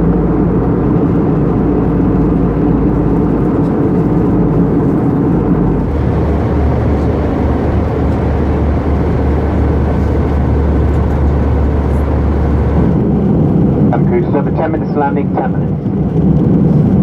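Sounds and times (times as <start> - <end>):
deep low hum: 0.0 - 15.0
rush of engines and airflow: 0.0 - 17.0.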